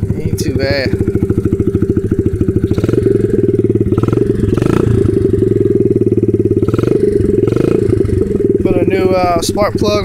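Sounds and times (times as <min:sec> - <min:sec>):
small engine idling: 0:00.0 - 0:10.0.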